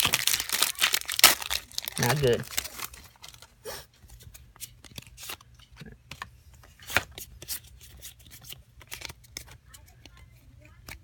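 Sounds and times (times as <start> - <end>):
trading cards clicking and rustling: 4.1 - 11.0.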